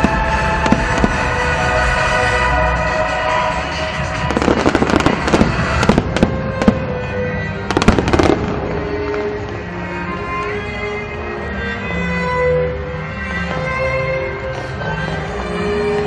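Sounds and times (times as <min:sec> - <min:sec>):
fireworks bursting and crackling: 0:00.0 - 0:10.2
background music: 0:00.0 - 0:16.0.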